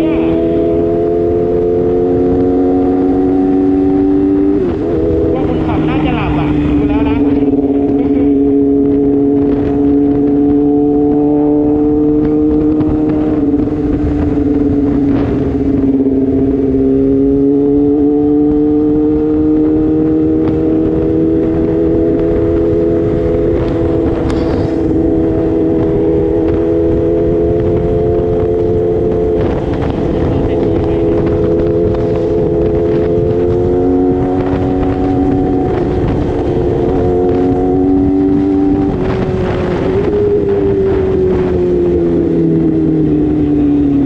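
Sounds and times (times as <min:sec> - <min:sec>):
motorcycle engine cruising: 0:00.0 - 0:44.0
wind rush: 0:00.0 - 0:44.0.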